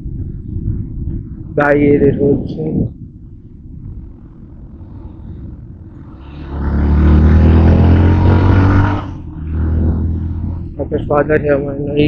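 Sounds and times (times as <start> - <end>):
wind rumble on microphone: 0.0 - 12.0
motorbike engine running: 2.8 - 12.0.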